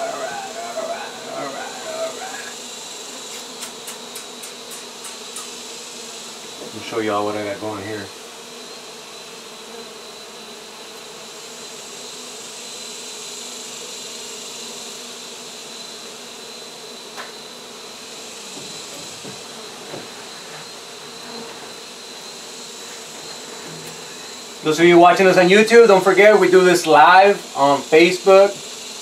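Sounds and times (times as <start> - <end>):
bee colony buzzing: 0.0 - 29.0.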